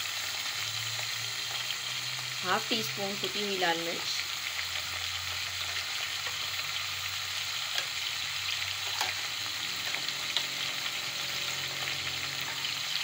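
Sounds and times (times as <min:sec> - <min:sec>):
potatoes sizzling in oil: 0:00.0 - 0:13.0.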